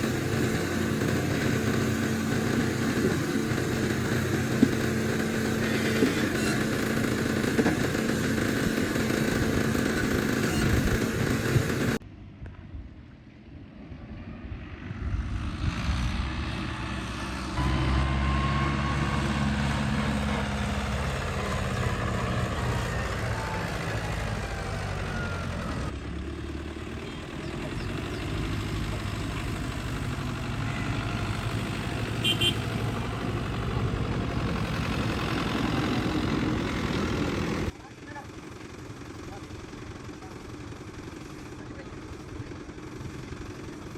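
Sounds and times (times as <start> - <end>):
tractor engine running: 0.0 - 12.0, 16.3 - 43.9.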